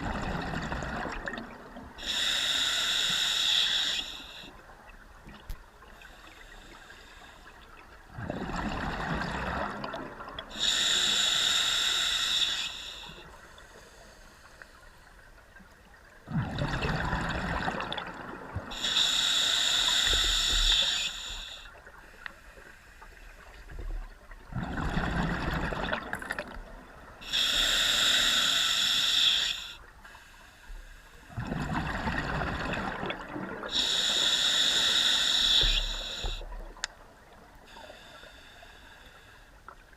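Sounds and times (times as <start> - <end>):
exhaled bubbles rumbling: 0.0 - 1.7, 8.1 - 10.5, 16.2 - 18.7, 24.4 - 26.8, 31.4 - 33.7
regulator inhale hiss: 2.0 - 4.6, 5.9 - 7.6, 10.5 - 15.3, 18.7 - 23.6, 27.2 - 31.4, 33.7 - 36.6, 37.6 - 39.7.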